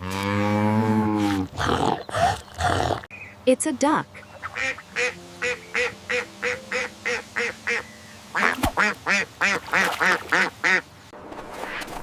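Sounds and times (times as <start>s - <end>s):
duck quacking: 4.4s - 10.8s.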